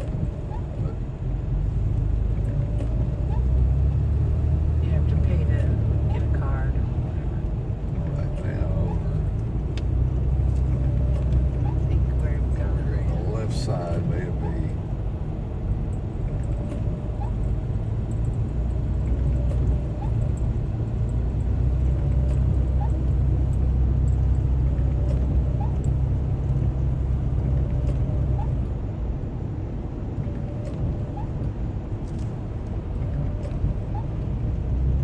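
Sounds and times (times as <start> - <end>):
car road and engine rumble: 0.0 - 35.0
faint short rising squeak: 19.8 - 20.3, 30.5 - 31.4.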